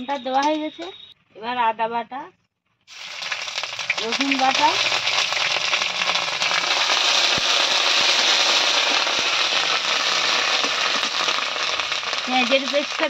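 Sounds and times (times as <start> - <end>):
paste sizzling in hot oil: 2.9 - 13.0.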